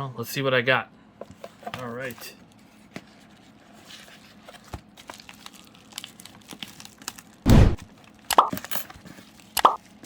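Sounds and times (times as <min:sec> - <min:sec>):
loud thump: 0:07.5 - 0:07.8.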